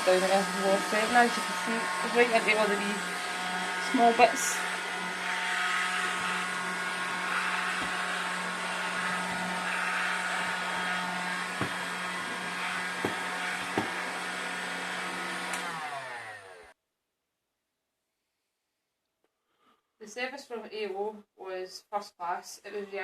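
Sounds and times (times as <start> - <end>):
stick vacuum running: 0.0 - 16.7.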